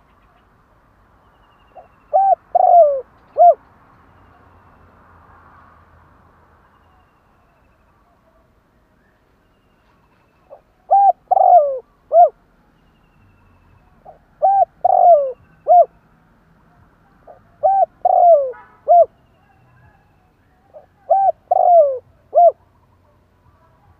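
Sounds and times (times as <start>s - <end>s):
dove cooing: 1.8s - 3.6s, 10.5s - 12.4s, 14.0s - 15.9s, 17.2s - 19.2s, 20.7s - 22.7s.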